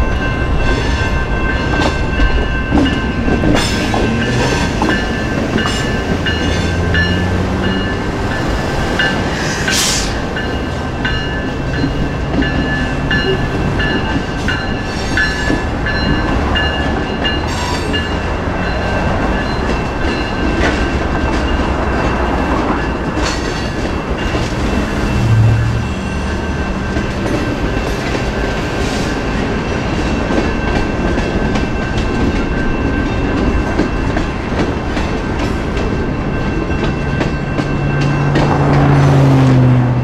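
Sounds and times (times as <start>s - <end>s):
wheels clacking over rail joints: 0.0s - 39.2s
crossing bell ringing: 0.0s - 40.0s
freight train wheel rumble: 0.0s - 40.0s
car passing: 17.8s - 28.9s, 38.0s - 40.0s.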